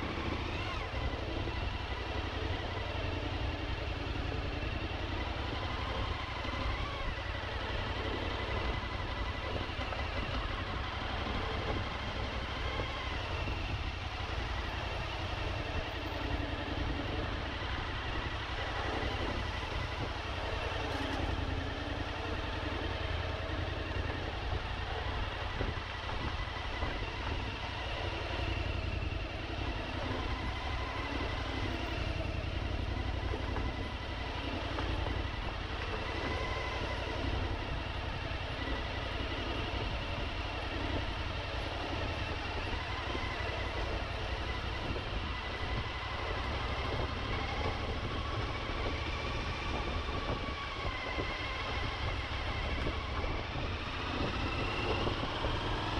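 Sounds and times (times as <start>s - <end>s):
motorcycle engine running: 0.0s - 55.9s
wind and road noise: 0.0s - 55.9s.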